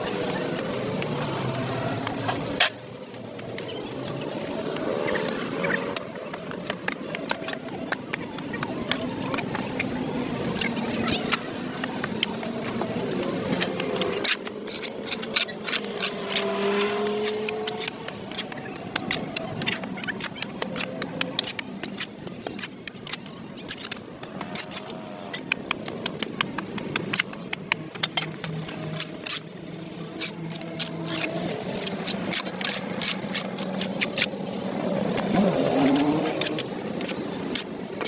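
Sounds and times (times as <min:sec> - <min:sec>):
tool scraping dirt off pavement: 0:11.2 - 0:37.8.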